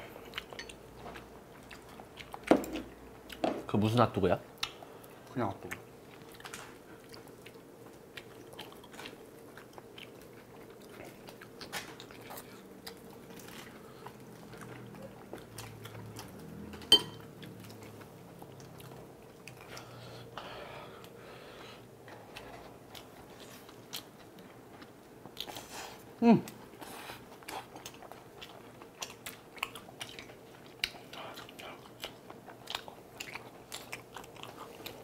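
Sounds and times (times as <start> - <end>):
biting and chewing food: 26.6 - 35.0.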